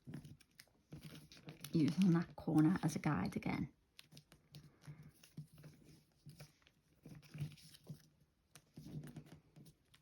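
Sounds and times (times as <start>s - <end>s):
paper crinkling and rustling: 0.0s - 10.0s.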